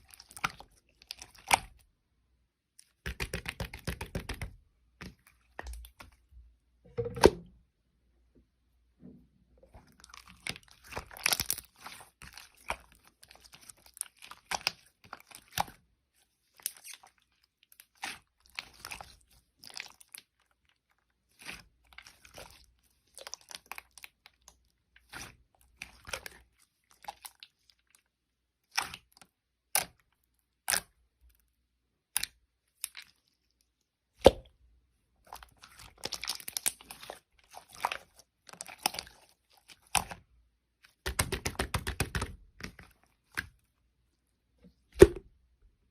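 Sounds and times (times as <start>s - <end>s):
slime squishing and popping: 10.0s - 15.8s, 35.3s - 40.2s.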